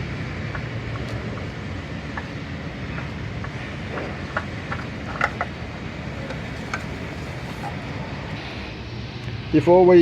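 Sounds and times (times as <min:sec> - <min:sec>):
oil filter clicking and clinking: 0:00.4 - 0:07.0.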